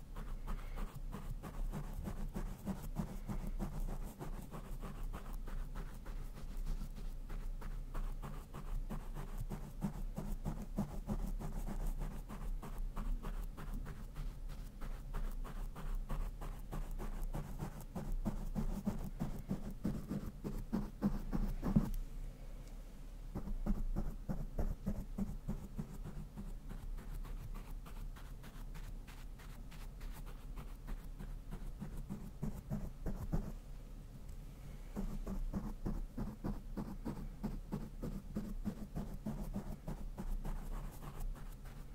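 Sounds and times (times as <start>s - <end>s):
steady low hum: 0.0s - 41.9s
brush scratching microphone grille: 23.4s - 33.5s, 35.0s - 41.9s.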